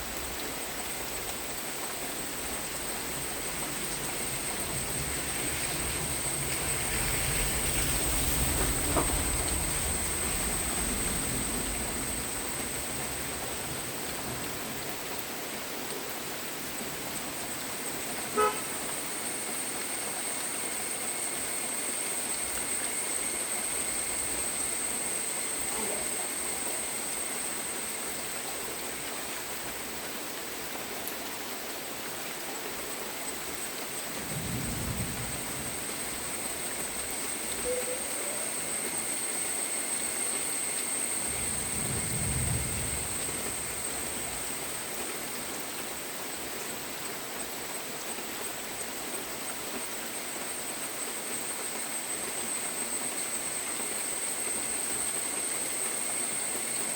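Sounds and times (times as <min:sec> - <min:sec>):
steady rain falling: 0:00.0 - 0:56.9
low rumble: 0:02.2 - 0:14.9, 0:34.1 - 0:38.4, 0:41.2 - 0:45.0
short pitched toot: 0:18.3 - 0:18.8, 0:37.6 - 0:38.6.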